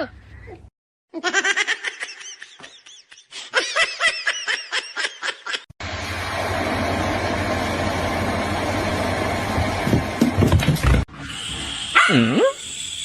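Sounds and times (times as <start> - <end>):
person laughing hard: 1.2 - 5.7.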